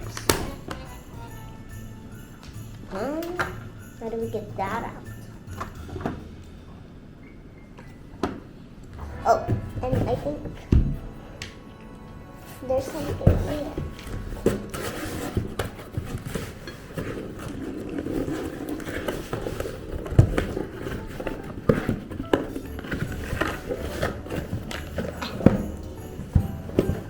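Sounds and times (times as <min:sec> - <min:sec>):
toy packaging being rummaged: 0:12.8 - 0:27.0.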